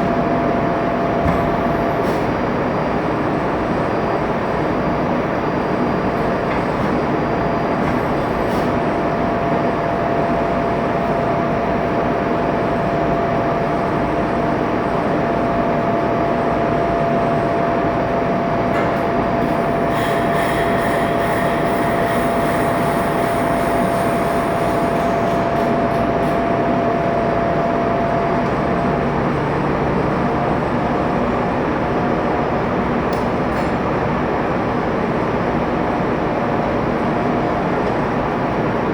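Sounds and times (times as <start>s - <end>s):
engine room machinery noise: 0.0s - 38.9s.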